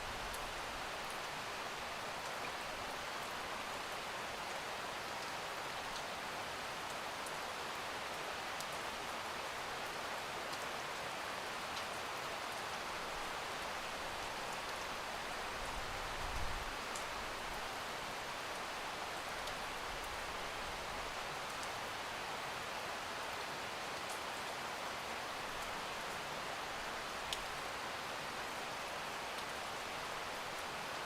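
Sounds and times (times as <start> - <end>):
rainfall hiss: 0.0 - 31.0.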